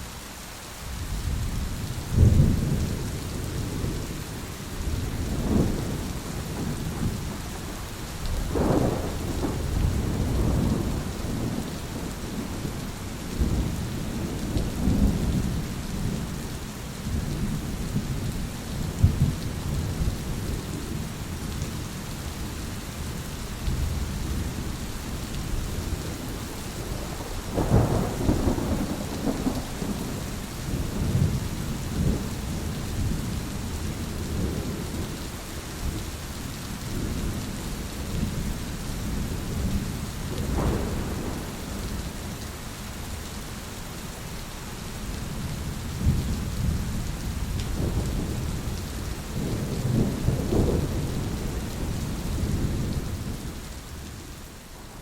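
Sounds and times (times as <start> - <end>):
steady rain falling: 0.0 - 55.0
thunder rumbling: 2.1 - 4.2, 4.8 - 7.8, 8.4 - 16.4, 23.7 - 35.1, 38.1 - 42.4, 45.2 - 53.6.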